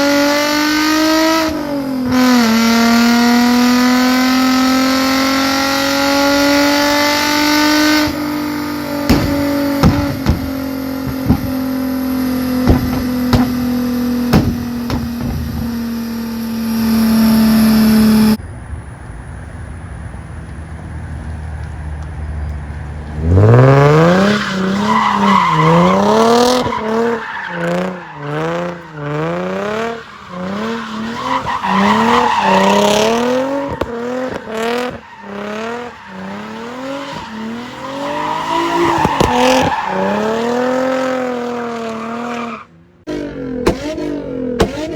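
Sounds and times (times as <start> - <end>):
car engine revving: 0.0 - 18.4, 19.3 - 44.9
exhaust pops and crackles: 8.9 - 15.8, 27.8 - 37.3, 38.8 - 40.1, 43.6 - 44.0.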